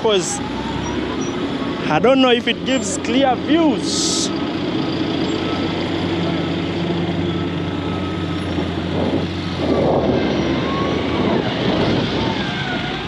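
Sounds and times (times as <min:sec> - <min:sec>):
street traffic noise: 0:00.0 - 0:13.0
vehicle engine humming: 0:00.0 - 0:13.0
rush of noise: 0:07.9 - 0:13.0.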